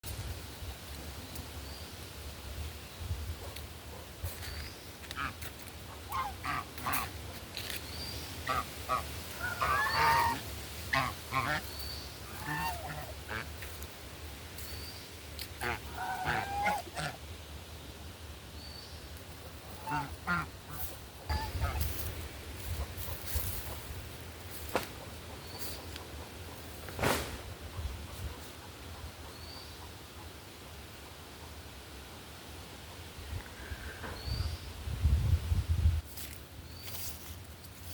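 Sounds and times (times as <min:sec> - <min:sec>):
domestic fowl calling: 0:05.1 - 0:07.2, 0:08.4 - 0:13.8, 0:15.6 - 0:17.2, 0:19.7 - 0:23.9.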